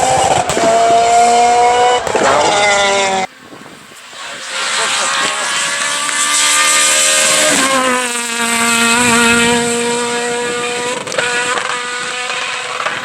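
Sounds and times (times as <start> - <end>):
rally car engine at high revs: 0.0 - 13.0.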